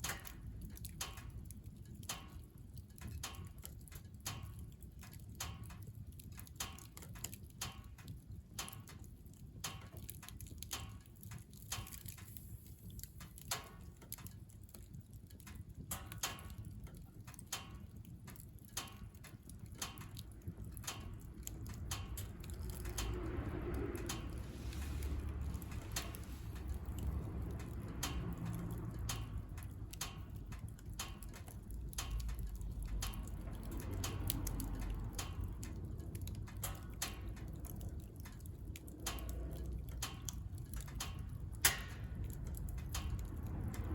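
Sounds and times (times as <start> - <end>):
wood fire crackling in stove: 0.0 - 43.9
low rumble: 20.2 - 43.9.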